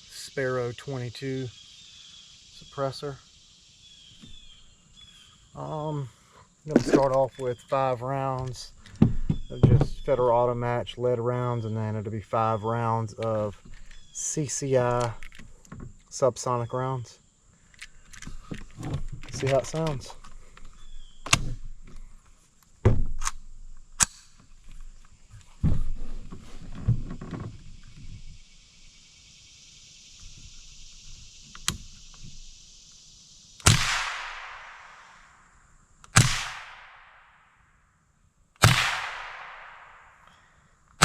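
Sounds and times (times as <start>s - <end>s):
suppressed rifle shots echoing: 33.6s - 35.4s, 36.1s - 37.4s, 38.6s - 40.2s.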